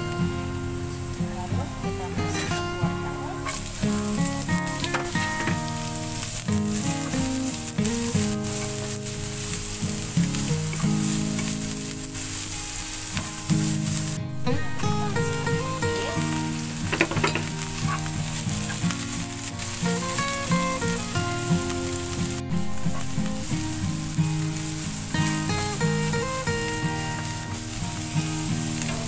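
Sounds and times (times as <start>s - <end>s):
vegetables sizzling in oil: 0.0s - 29.0s
spatula stirring in pan: 15.0s - 21.1s.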